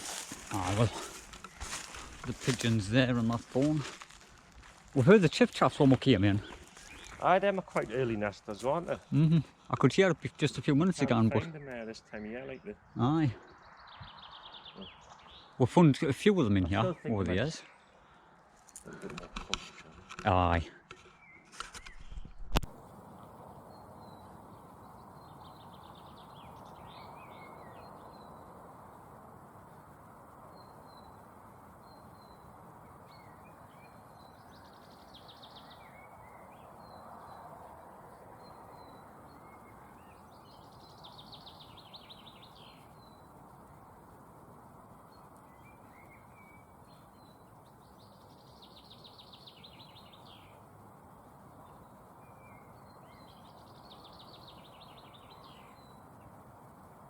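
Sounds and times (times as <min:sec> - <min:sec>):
thin bird calls and chirps: 0:10.8 - 0:15.6, 0:21.0 - 0:28.6, 0:30.4 - 0:43.8, 0:45.0 - 0:56.4
bird trilling song: 0:38.4 - 0:43.3, 0:45.1 - 0:50.6, 0:51.6 - 0:56.1.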